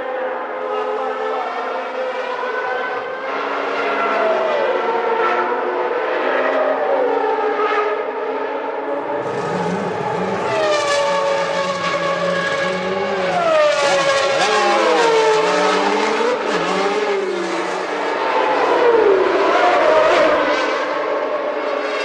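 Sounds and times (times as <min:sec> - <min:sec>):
racing car engines revving: 0:02.8 - 0:22.0
lower engine note: 0:08.9 - 0:17.3.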